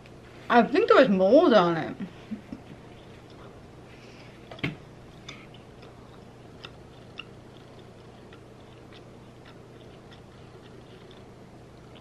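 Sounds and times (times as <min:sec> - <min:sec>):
low steady hum: 0:00.0 - 0:12.0
person chewing food: 0:02.8 - 0:12.0
wet mouth clicks: 0:04.5 - 0:12.0.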